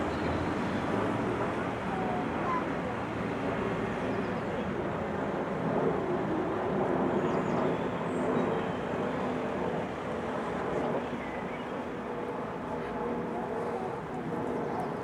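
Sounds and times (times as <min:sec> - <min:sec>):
faint wavering hum: 0:07.2 - 0:15.0.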